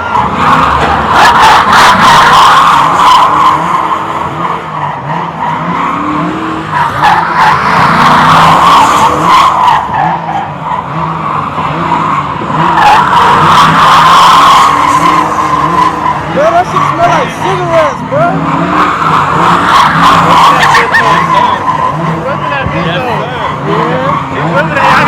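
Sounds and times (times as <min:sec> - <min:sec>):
car engine revving: 0:00.0 - 0:25.0
tyres squealing: 0:00.0 - 0:25.0.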